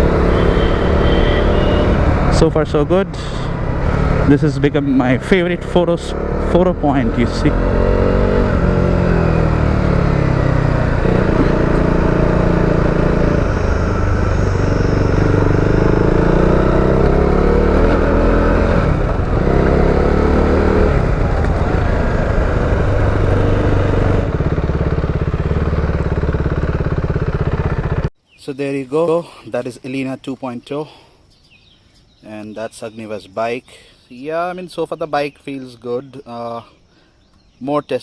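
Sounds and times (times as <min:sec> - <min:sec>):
motorcycle engine revving: 0:00.0 - 0:28.1.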